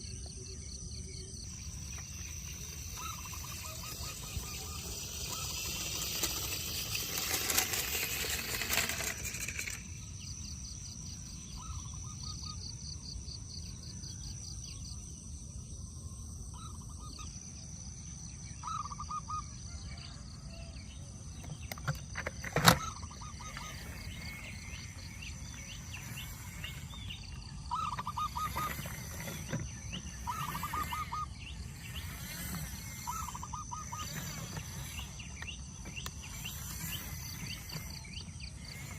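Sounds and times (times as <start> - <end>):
short chirping trills: 1.2 - 13.0, 22.8 - 38.9.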